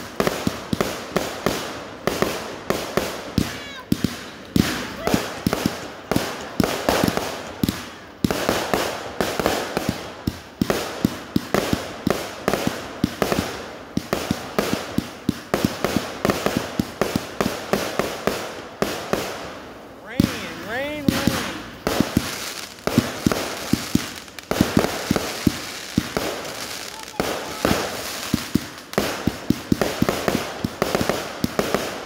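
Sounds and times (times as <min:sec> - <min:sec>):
firework bangs and crackles: 0:00.0 - 0:32.0.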